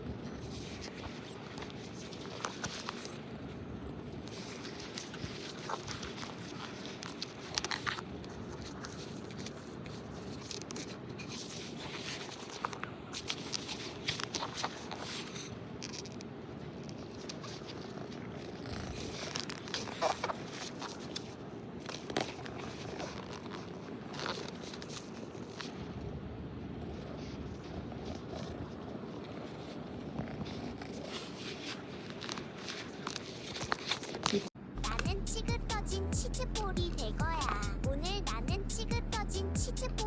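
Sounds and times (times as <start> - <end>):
cat purring: 16.9 - 21.4.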